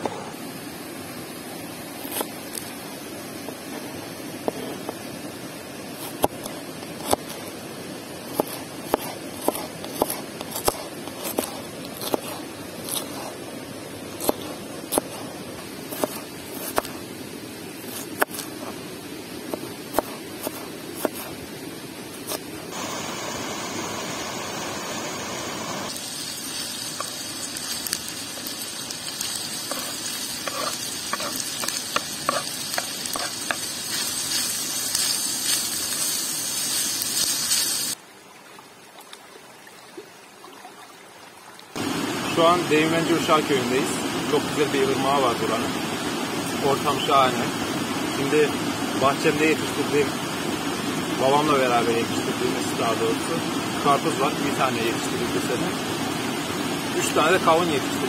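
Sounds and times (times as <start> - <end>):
meat sizzling in a pan: 25.8 - 38.0.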